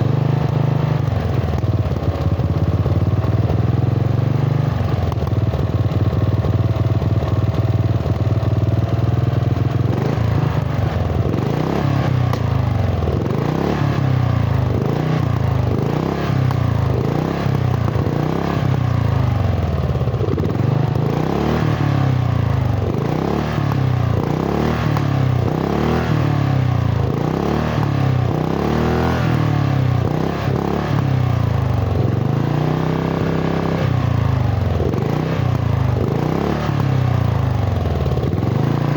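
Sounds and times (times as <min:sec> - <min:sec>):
lawn tractor engine revving: 0:09.1 - 0:38.9.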